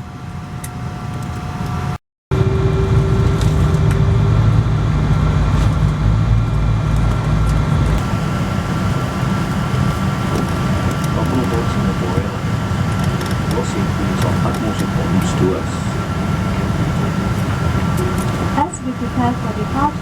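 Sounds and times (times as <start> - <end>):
aircraft cabin rumble and hum: 0.0 - 20.0
faint steady tones: 8.0 - 20.0.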